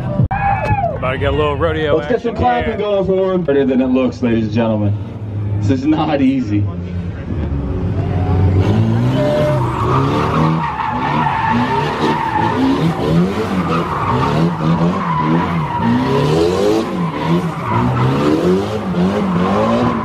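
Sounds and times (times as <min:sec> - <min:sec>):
tires squealing: 0:02.0 - 0:20.0
car engine revving: 0:04.6 - 0:20.0.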